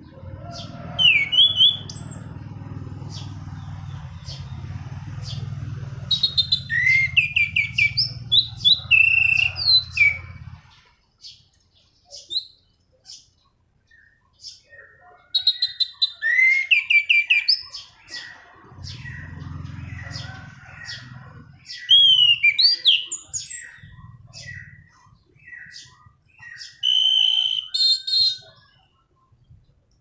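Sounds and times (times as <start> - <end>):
thrush singing: 0.0 - 10.8, 18.1 - 26.1.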